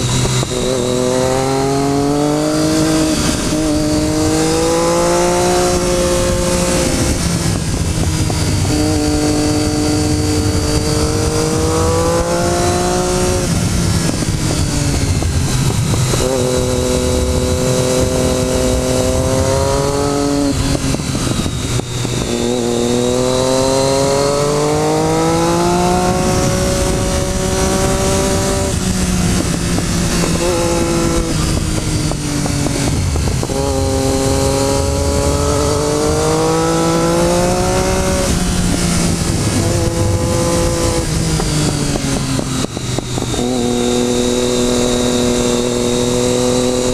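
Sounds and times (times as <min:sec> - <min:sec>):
motorcycle engine accelerating: 0:00.0 - 0:46.9
wind rushing: 0:00.0 - 0:46.9.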